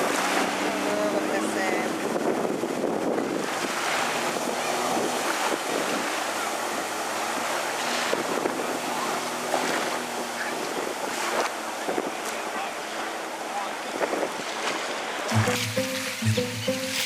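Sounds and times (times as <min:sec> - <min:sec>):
wind buffeting microphone: 0:00.0 - 0:12.2, 0:13.7 - 0:15.0
jet ski engine hum: 0:00.0 - 0:17.0
water noise: 0:00.0 - 0:17.0.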